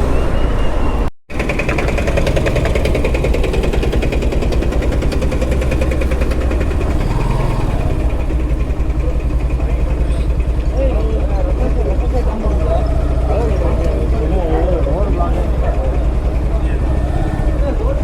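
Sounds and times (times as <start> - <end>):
motorcycle engine running: 1.3 - 18.0.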